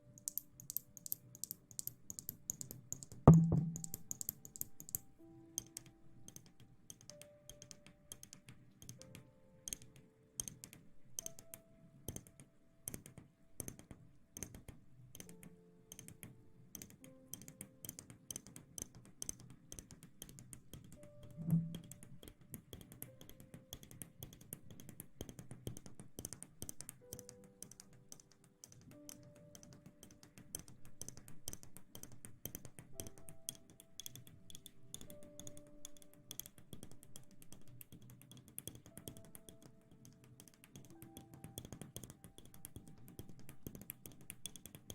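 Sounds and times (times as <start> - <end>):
soft background music: 0.0 - 44.9
low thump: 3.3 - 4.0.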